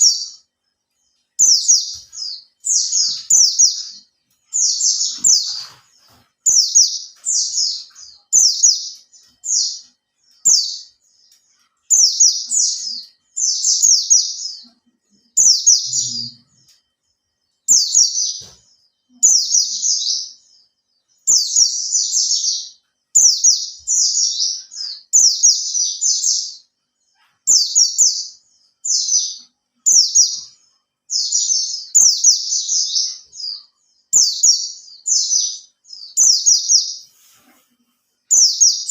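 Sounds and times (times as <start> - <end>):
bird twittering: 1.4 - 5.8.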